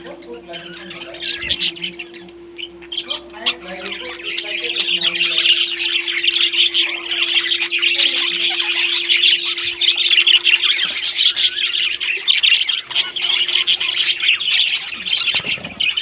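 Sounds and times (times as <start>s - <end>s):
parrots squawking and chirping: 0.0s - 16.0s.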